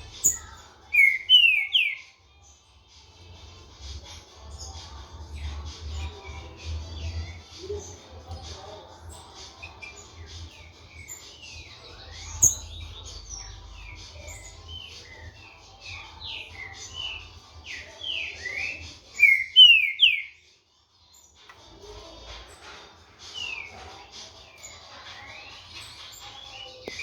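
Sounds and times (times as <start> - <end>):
other birds chirping: 0.0 - 27.0
bird singing whistled phrases: 0.2 - 2.1, 16.3 - 20.4.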